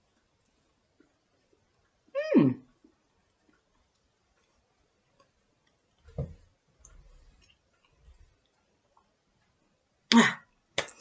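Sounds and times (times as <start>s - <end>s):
person chewing cake: 0.0s - 2.1s, 2.7s - 9.7s
soft thump: 6.1s - 6.4s.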